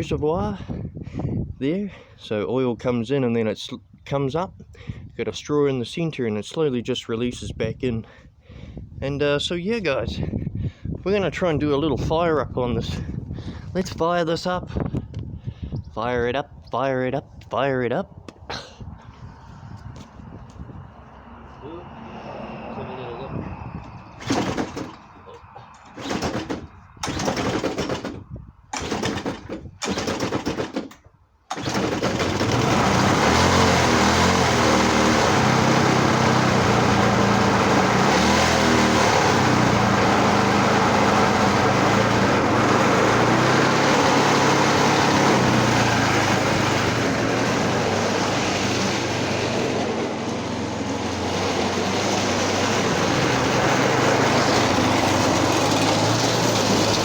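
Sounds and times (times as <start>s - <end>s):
lawnmower engine running: 24.2s - 25.2s, 25.8s - 28.1s, 28.7s - 57.0s.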